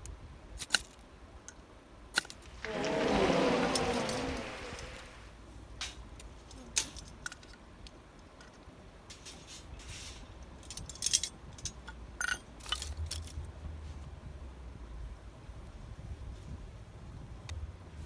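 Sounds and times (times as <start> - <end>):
low steady rumble: 2.4 - 5.3.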